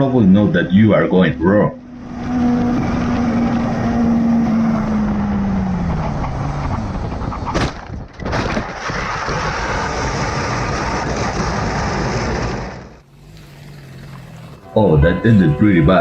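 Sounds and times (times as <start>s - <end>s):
wind and road noise: 0.0s - 16.0s
motorcycle engine slowing: 0.7s - 7.5s.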